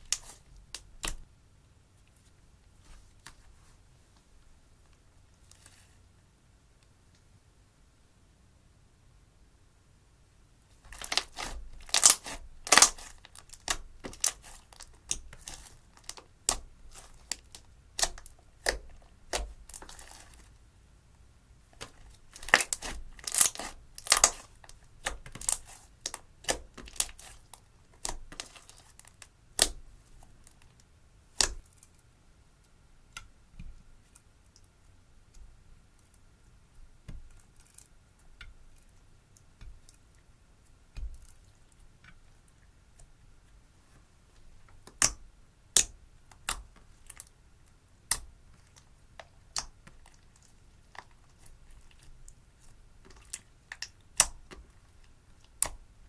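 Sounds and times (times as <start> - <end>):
slime crackling and popping: 10.9 - 20.5, 21.8 - 29.8.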